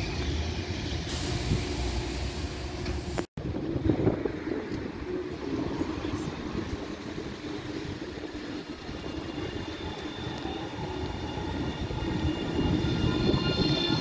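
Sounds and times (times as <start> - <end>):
tram low rumble: 0.0 - 14.0.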